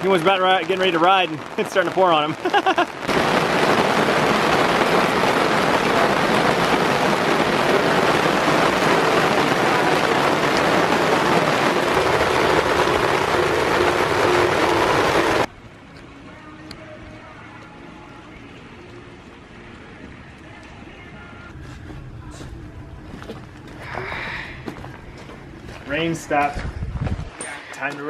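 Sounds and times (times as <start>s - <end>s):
heavy rain pouring: 0.0s - 15.5s.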